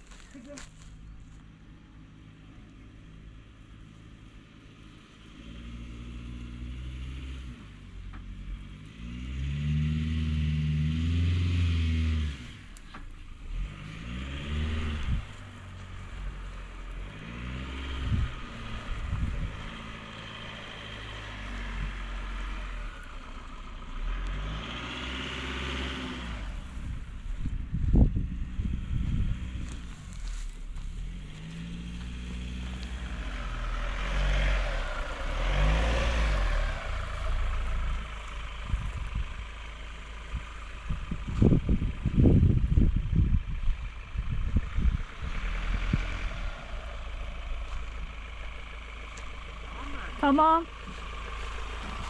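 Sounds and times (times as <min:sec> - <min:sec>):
car engine revving: 0:05.2 - 0:39.4, 0:44.2 - 0:52.0.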